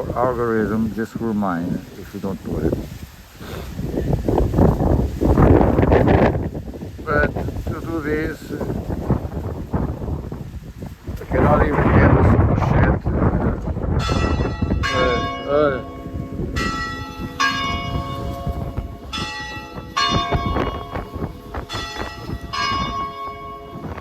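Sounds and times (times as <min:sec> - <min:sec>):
wind rumble on microphone: 0:00.0 - 0:24.0
church bells ringing: 0:14.0 - 0:24.0.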